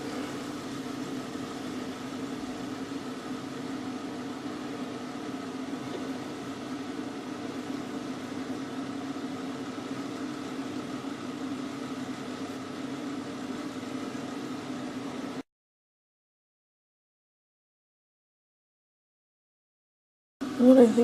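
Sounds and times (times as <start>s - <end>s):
microwave oven humming: 0.0s - 15.5s, 20.4s - 21.0s.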